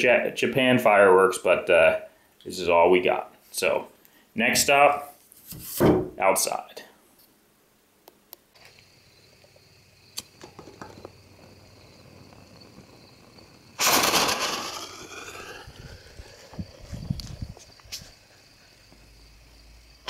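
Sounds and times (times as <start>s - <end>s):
firework shell launch bang: 13.8s - 16.6s.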